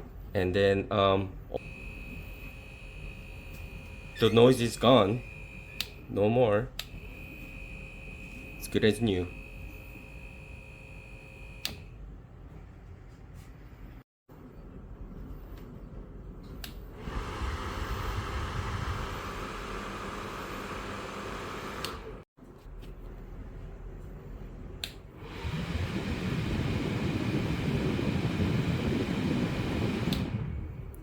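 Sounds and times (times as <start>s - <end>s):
electric fan running: 1.6s - 12.6s, 16.6s - 22.2s, 24.2s - 31.0s
fan switch click: 11.6s - 11.9s, 16.6s - 16.8s, 24.8s - 25.0s, 30.0s - 30.4s.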